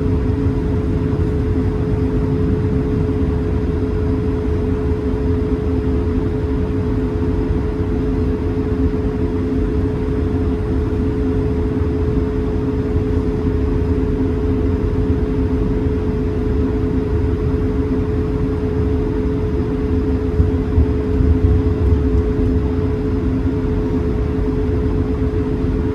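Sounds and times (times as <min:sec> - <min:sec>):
jet engines idling: 0:00.0 - 0:08.8, 0:16.1 - 0:25.9.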